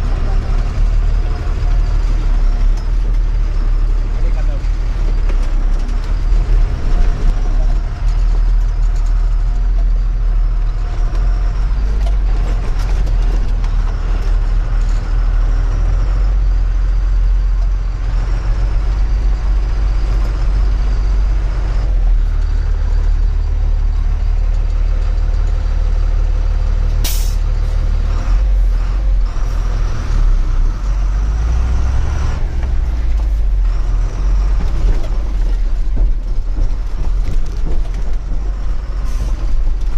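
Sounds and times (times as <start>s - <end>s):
diesel truck engine running: 0.0s - 39.9s
air brake hiss: 27.0s - 27.5s.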